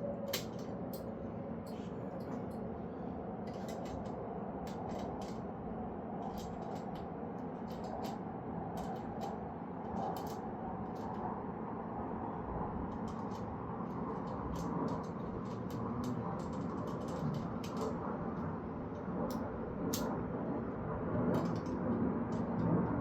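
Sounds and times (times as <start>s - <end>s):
steady background noise: 0.0s - 23.0s
metal parts and tools clicking: 0.3s - 1.1s, 3.5s - 4.1s, 6.2s - 7.0s, 7.6s - 8.2s.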